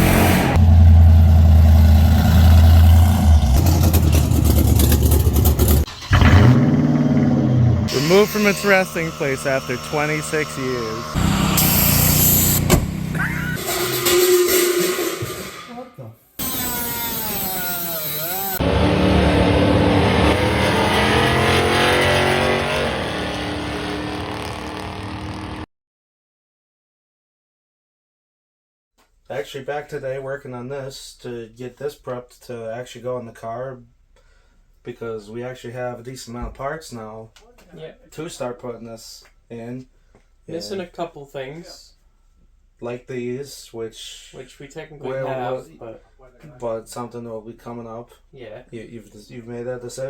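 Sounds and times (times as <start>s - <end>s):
loud engine running: 0.0s - 14.2s, 16.4s - 25.6s
fast even rattling: 3.6s - 6.3s.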